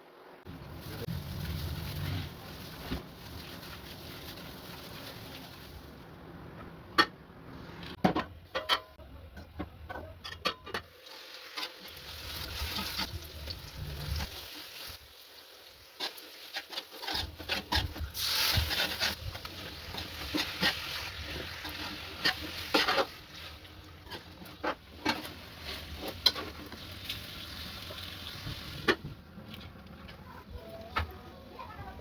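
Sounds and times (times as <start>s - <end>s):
utensils scraping in a pan: 10.4s - 13.2s, 16.0s - 28.0s.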